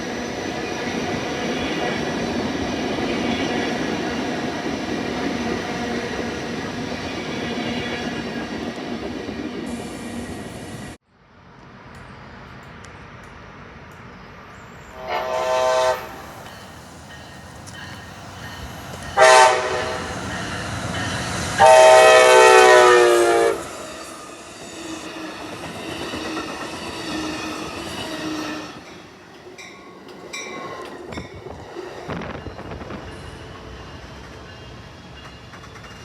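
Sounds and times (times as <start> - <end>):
train rumble: 0.0 - 36.0
train horn blasts: 14.9 - 16.2, 19.2 - 20.2, 21.6 - 23.8.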